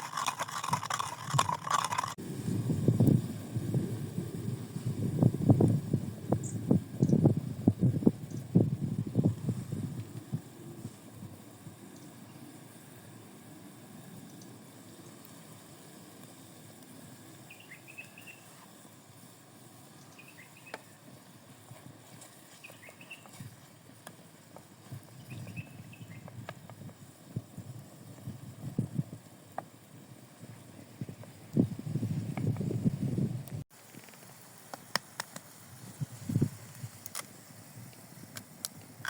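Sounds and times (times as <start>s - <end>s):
small bird high chirps: 17.5s - 18.6s, 20.1s - 20.9s, 22.6s - 23.5s, 25.2s - 26.3s.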